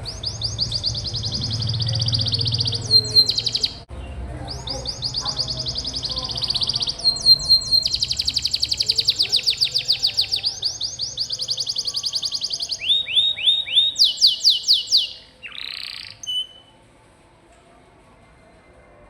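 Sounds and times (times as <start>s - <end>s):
canary singing trills: 0.0s - 16.8s.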